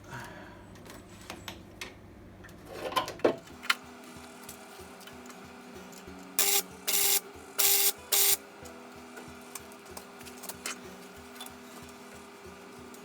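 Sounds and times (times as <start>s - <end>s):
welding arc crackling: 6.4s - 8.4s.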